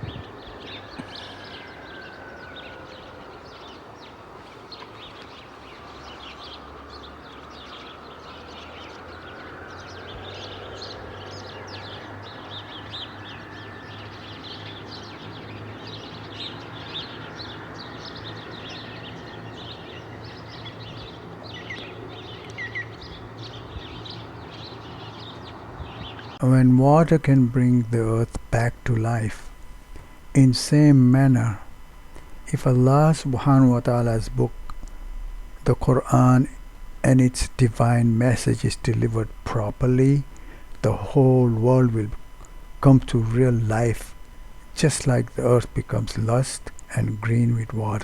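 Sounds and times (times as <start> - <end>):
small birds chirping: 0.0 - 48.0
steady low hum: 0.0 - 48.0.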